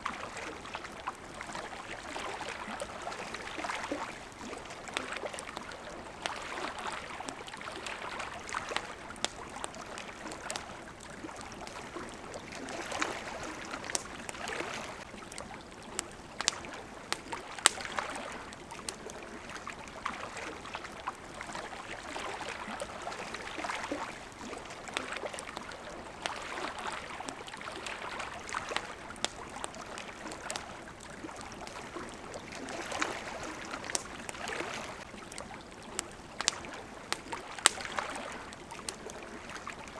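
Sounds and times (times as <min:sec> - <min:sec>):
campfire crackling: 0:00.0 - 0:39.9
water lapping and splashing: 0:00.0 - 0:39.9.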